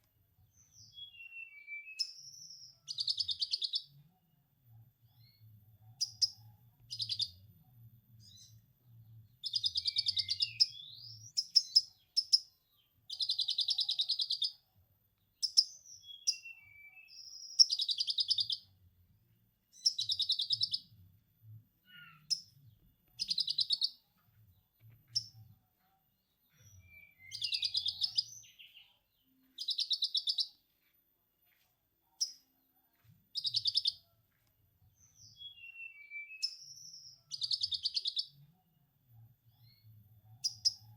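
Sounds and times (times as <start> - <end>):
songbird trilling: 23.2 - 24.0, 26.9 - 28.7, 29.6 - 30.5.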